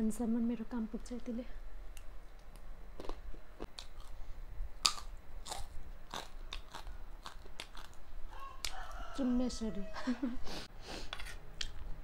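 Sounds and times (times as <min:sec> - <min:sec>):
crunching and chewing snack: 0:03.0 - 0:04.2, 0:04.8 - 0:08.0.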